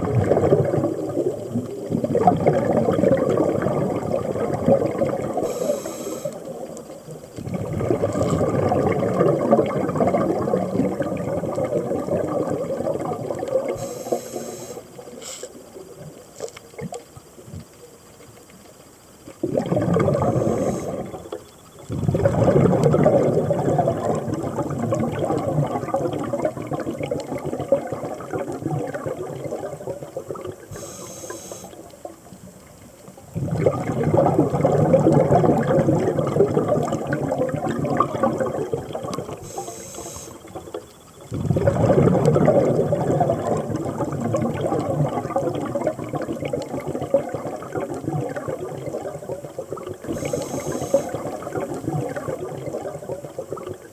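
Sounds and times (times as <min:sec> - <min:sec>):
diver inhaling: 0:05.4 - 0:06.4, 0:13.8 - 0:15.5, 0:20.2 - 0:21.2, 0:30.7 - 0:31.8, 0:39.4 - 0:40.5, 0:50.1 - 0:51.2
regulator exhaust bubbles rushing: 0:19.4 - 0:21.2, 0:21.9 - 0:30.5, 0:41.3 - 0:49.2.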